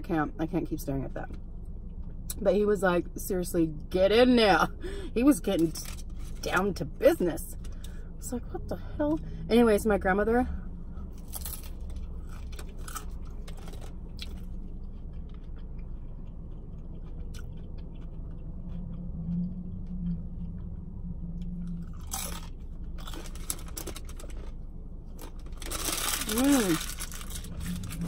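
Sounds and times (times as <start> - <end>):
low hum: 0.0 - 28.0
person chewing and crunching food: 11.0 - 28.0.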